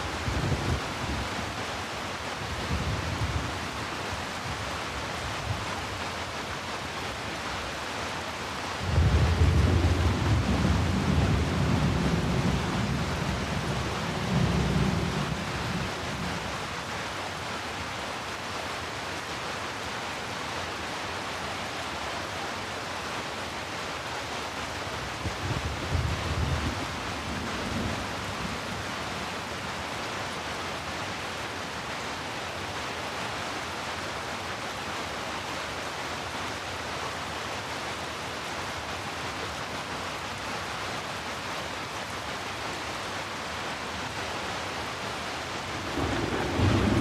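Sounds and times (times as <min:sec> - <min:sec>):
heavy rain: 0:00.0 - 0:47.0
thunder rumbling: 0:08.8 - 0:16.4, 0:45.8 - 0:47.0.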